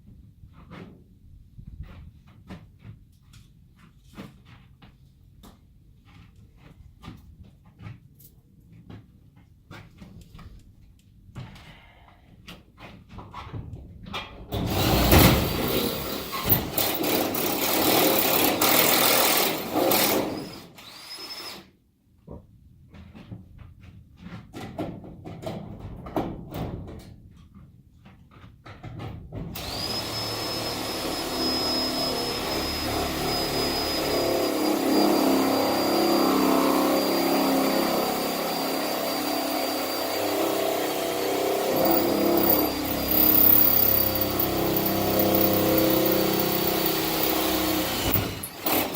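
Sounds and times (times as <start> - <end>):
power drill boring: 14.6 - 21.7, 29.6 - 48.9.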